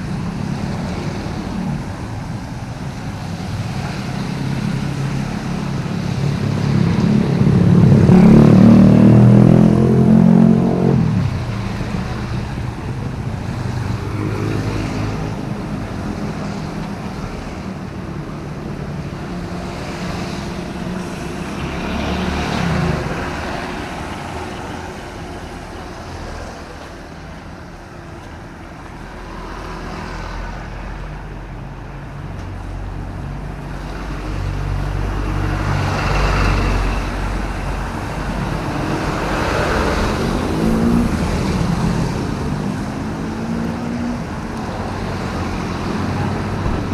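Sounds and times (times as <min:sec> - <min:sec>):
background traffic: 0:00.0 - 0:46.9
vehicles passing on wet road: 0:00.0 - 0:46.9.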